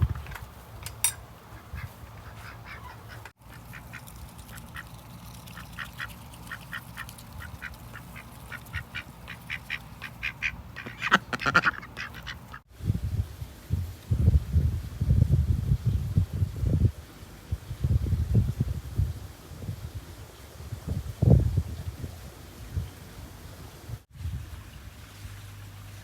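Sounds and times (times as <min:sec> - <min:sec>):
birds calling rapidly: 0:01.0 - 0:12.7.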